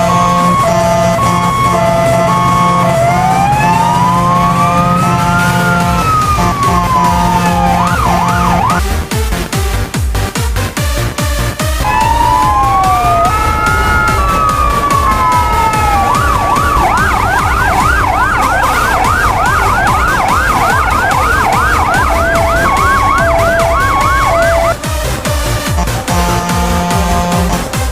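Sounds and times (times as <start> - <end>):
fire engine siren: 0.0 - 8.8, 11.8 - 27.9
background music with beat: 0.0 - 27.9.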